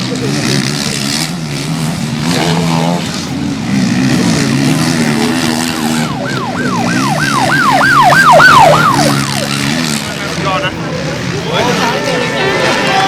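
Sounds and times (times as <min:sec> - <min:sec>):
motocross bike engines revving: 0:00.0 - 0:13.0
rising and falling siren wail: 0:05.2 - 0:10.0.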